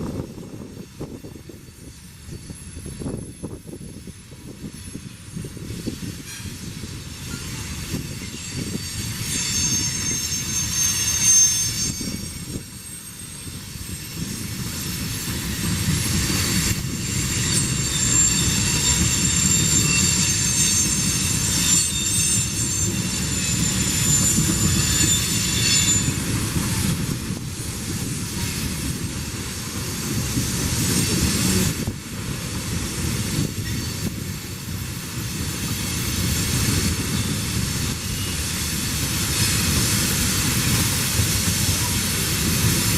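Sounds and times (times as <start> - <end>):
train wheels rumbling on rail: 0.0 - 42.9
wheel squeal: 5.8 - 27.1, 33.1 - 42.9.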